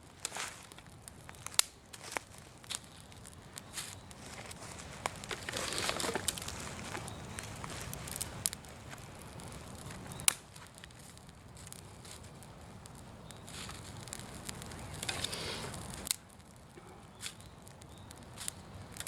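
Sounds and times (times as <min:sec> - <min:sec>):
leaf bonfire crackling: 0:00.0 - 0:19.0
sharp pop from fire: 0:09.8 - 0:12.2, 0:12.8 - 0:19.0.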